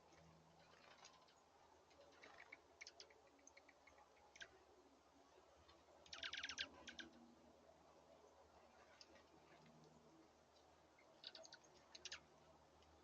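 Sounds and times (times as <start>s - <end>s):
birds clicking at a feeder: 0.0s - 4.6s, 5.6s - 7.2s, 8.8s - 13.0s.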